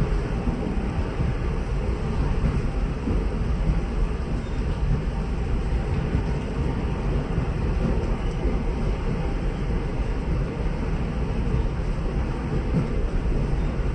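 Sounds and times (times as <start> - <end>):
train rumbling on track: 0.0 - 13.9.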